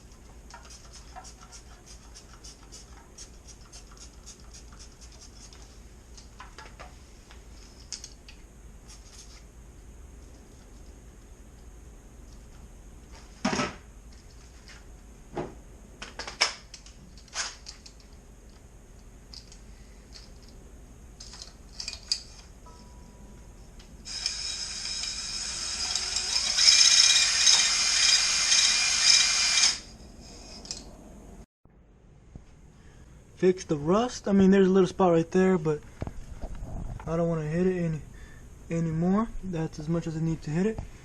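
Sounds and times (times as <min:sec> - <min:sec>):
power tool whining: 0:24.0 - 0:30.0.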